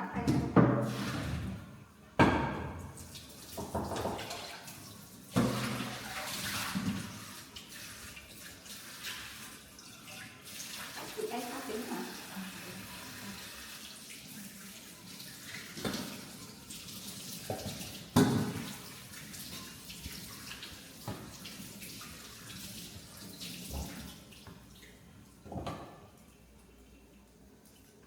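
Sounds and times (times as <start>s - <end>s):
objects knocking in sink: 0.2s - 1.6s, 2.2s - 4.5s, 5.3s - 6.0s, 17.4s - 18.8s, 25.4s - 26.1s
tap running into sink: 2.2s - 4.6s, 5.3s - 7.3s, 15.7s - 16.4s, 17.4s - 21.7s, 23.6s - 24.6s, 25.4s - 26.1s.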